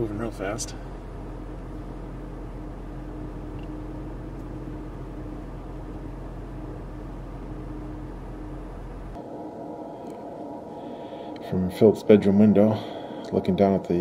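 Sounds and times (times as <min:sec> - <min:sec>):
car cabin hum: 0:00.0 - 0:09.2
faint tone: 0:00.0 - 0:12.0.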